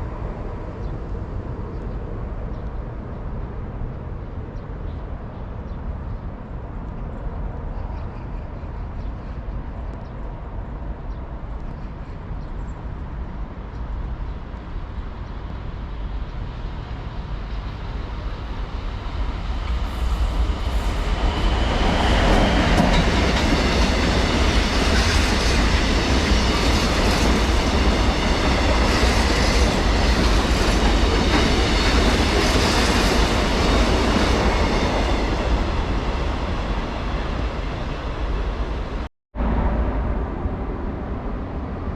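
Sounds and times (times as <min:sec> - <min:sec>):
train wheels clattering on rails: 0:18.7 - 0:38.3.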